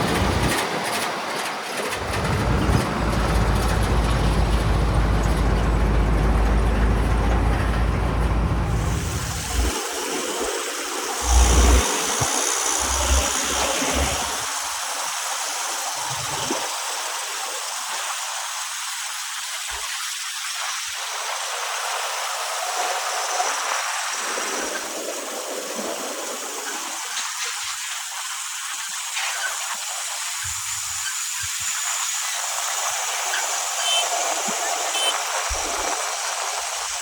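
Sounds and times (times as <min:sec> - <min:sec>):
diesel engine rumbling: 0:00.0 - 0:00.6, 0:01.9 - 0:09.9, 0:11.2 - 0:14.8
hiss: 0:08.8 - 0:37.0.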